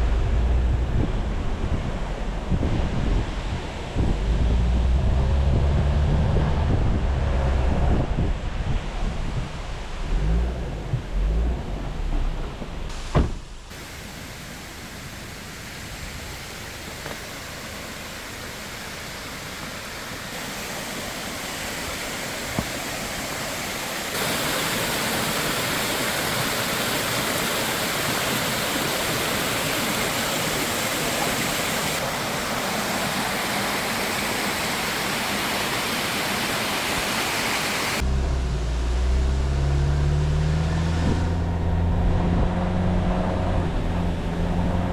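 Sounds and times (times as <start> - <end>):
vehicle engine rumbling: 0.0 - 24.8, 38.0 - 44.9
rushing water: 0.0 - 41.0.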